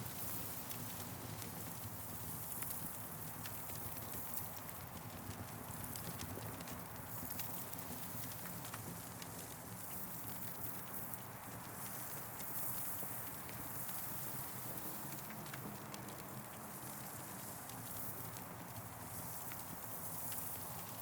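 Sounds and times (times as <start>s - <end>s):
campfire crackling and popping: 14.3s - 21.0s.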